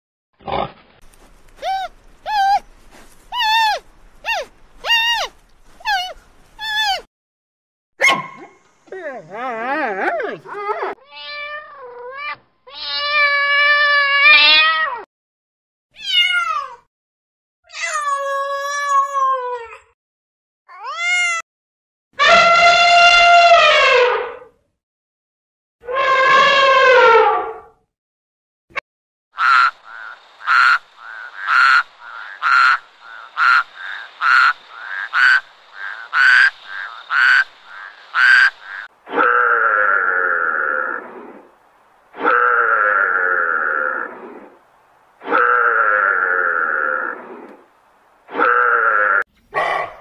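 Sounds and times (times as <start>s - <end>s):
cat meowing: 16.0s - 16.8s
frog croaking: 29.4s - 41.5s, 42.1s - 44.5s, 45.2s - 47.6s.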